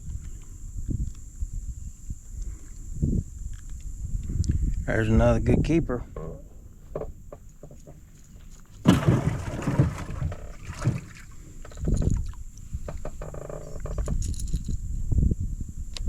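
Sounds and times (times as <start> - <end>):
knocks in a small boat: 6.1 - 8.0, 8.8 - 14.4
water splashing: 8.8 - 12.5.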